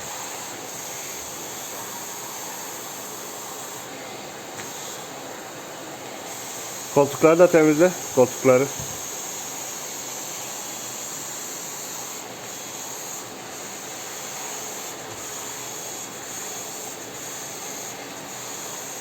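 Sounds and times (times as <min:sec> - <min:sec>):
vacuum cleaner whirring: 0:00.0 - 0:09.2.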